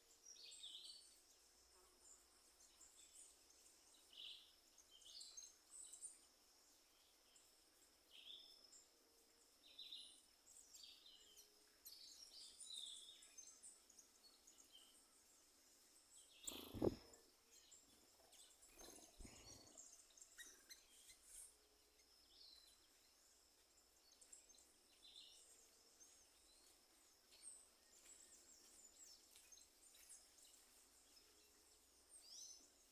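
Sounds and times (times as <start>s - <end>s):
birds chirping: 16.4s - 17.2s, 18.7s - 20.6s.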